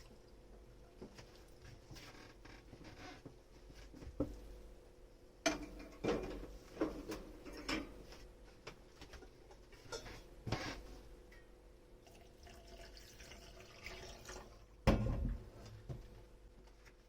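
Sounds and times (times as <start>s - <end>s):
dishes clinking: 5.4s - 6.4s, 7.4s - 8.0s.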